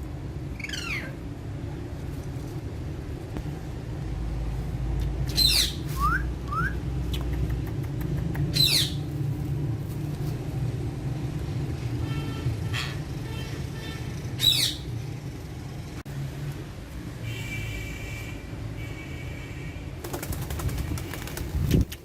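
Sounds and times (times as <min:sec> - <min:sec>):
parakeets screeching: 0:00.5 - 0:01.2, 0:05.3 - 0:05.9, 0:08.5 - 0:09.1, 0:12.6 - 0:13.1, 0:14.0 - 0:15.0.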